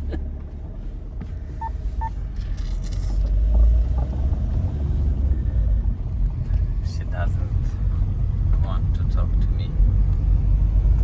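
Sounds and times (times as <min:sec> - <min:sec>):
car driving low rumble: 0:00.0 - 0:11.0.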